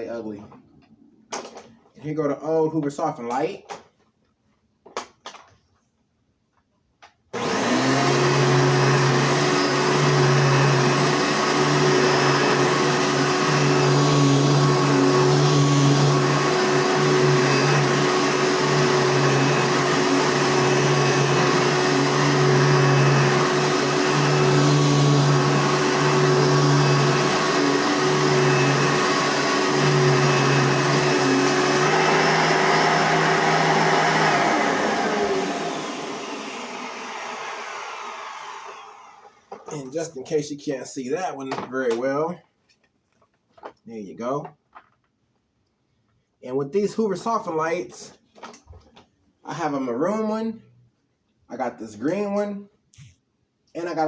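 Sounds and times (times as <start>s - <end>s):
vacuum cleaner running: 7.4s - 40.1s.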